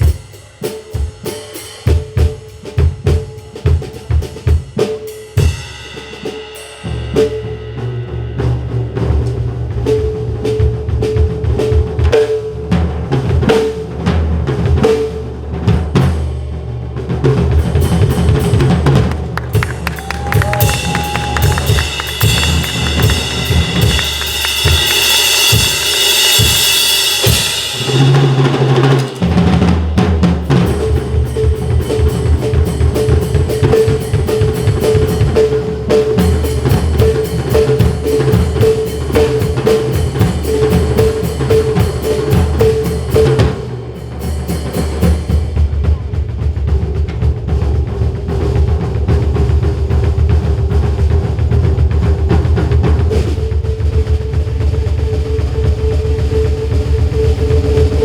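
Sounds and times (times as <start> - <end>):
fast drum kit playing: 0.0 - 58.0
cymbal wash: 20.6 - 45.5.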